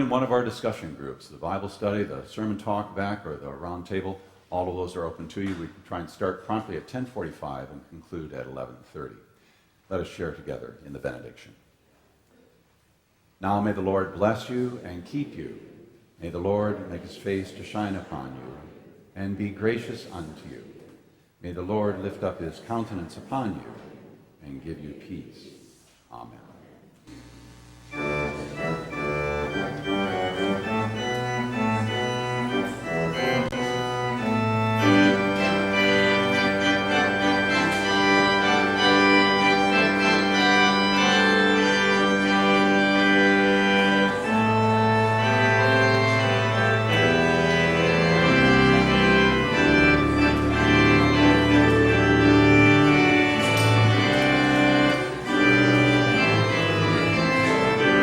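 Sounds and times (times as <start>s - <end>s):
church organ chords: 0.0s - 7.4s, 27.1s - 58.0s.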